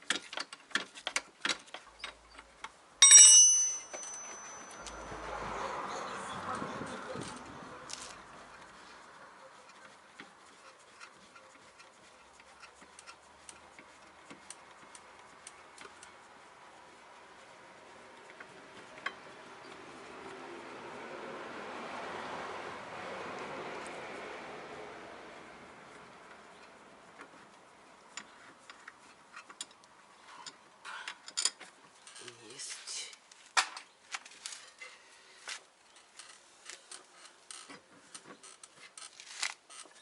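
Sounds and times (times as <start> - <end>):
light clicks and taps of hand work: 0.0 - 2.8, 9.6 - 16.2, 25.9 - 31.8
clicks of hand tools and metal: 0.0 - 5.0, 28.2 - 32.4.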